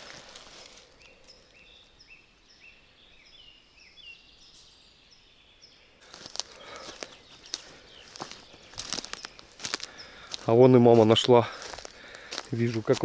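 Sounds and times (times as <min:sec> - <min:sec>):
footsteps crunching on forest litter: 0:00.0 - 0:01.6, 0:06.0 - 0:13.0.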